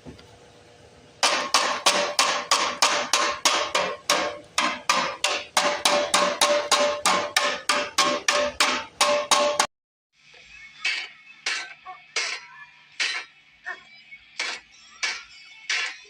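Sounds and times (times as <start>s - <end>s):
knocking on sheet metal: 1.2s - 9.7s.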